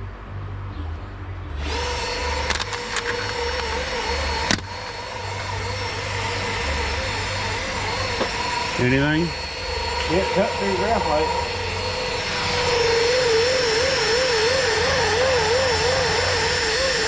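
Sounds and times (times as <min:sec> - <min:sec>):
electric drill running: 0:01.6 - 0:17.0
sharp clicks: 0:02.4 - 0:05.0.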